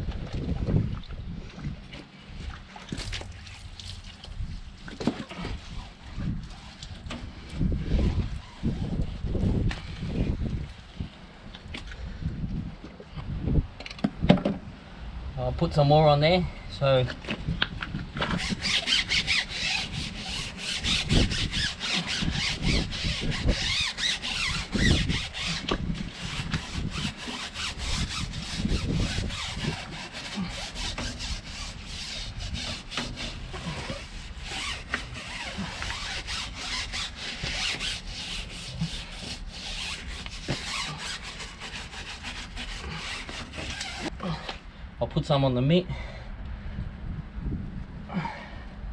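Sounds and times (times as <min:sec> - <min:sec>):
tyre rubber being scrubbed: 0:05.3 - 0:10.4, 0:18.2 - 0:44.4.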